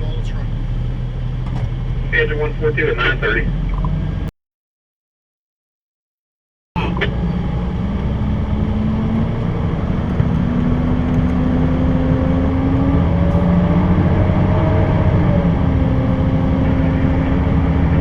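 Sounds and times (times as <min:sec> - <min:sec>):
truck engine heard from cab: 0:00.0 - 0:04.3, 0:06.8 - 0:18.0.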